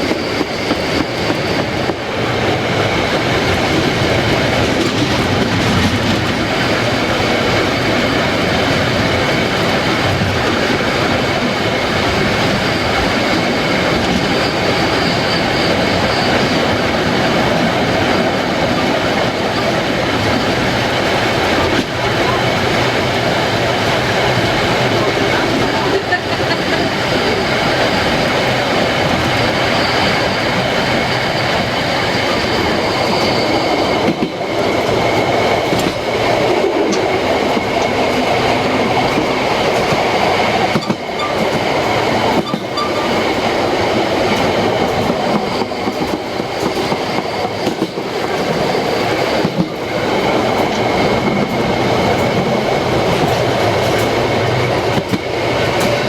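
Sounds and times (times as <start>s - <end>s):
train wheels rattling on rails: 0.0s - 56.0s
high-pitched whining tones: 40.7s - 44.4s.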